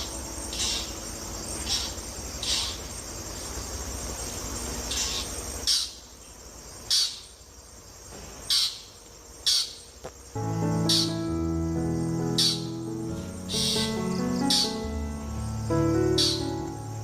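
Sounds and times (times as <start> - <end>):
short high raspy chirps: 0.0 - 2.9, 10.7 - 11.4, 12.2 - 14.9
crickets trilling: 0.0 - 17.0.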